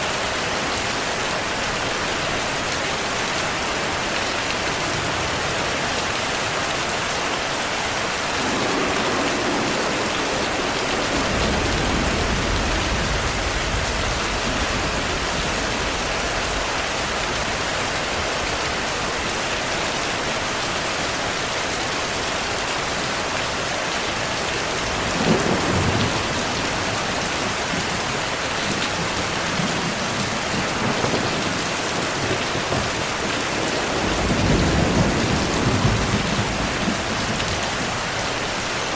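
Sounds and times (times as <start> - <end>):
heavy rain falling: 0.0 - 38.9
thunder rumbling: 8.0 - 17.7, 24.8 - 38.2
sharp thunderclap: 8.4 - 16.8, 25.0 - 28.0, 29.0 - 38.0.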